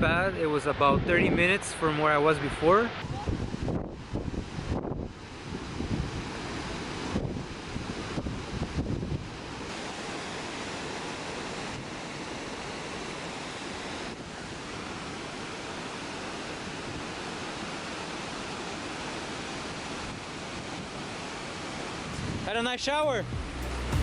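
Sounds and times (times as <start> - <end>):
wind buffeting microphone: 0.0 - 1.6, 3.0 - 9.8, 22.1 - 22.5
waterfall rushing: 9.4 - 24.0.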